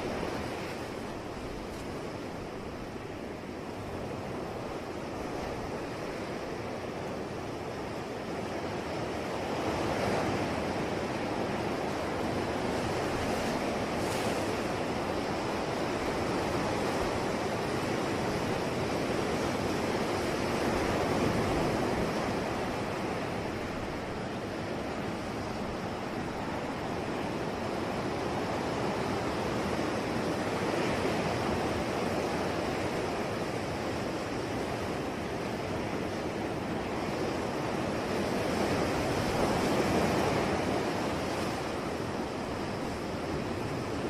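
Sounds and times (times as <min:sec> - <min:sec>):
ocean waves washing ashore: 0:00.0 - 0:44.0.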